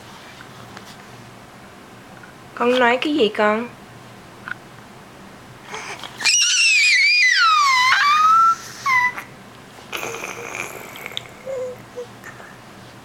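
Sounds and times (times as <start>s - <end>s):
breathy noisy sound: 5.6s - 6.3s, 9.9s - 12.7s
child squealing: 5.8s - 9.3s.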